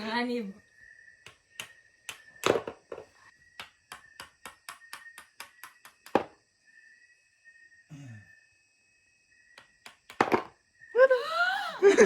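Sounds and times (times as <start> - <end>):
plastic hammer tapping plastic blocks: 1.2 - 6.4, 9.6 - 10.5.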